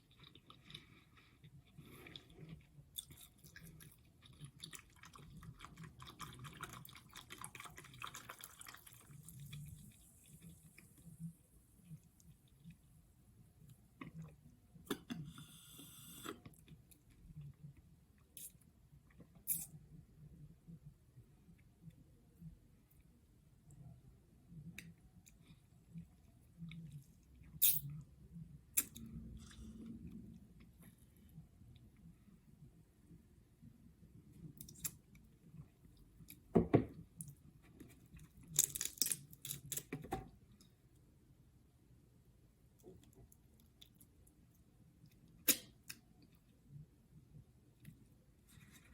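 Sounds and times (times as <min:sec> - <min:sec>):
chewing seafood: 0:00.0 - 0:10.8
soft chewing: 0:00.0 - 0:15.2, 0:16.4 - 0:41.2, 0:42.5 - 0:48.9
loud crunch of shellfish: 0:38.4 - 0:39.9.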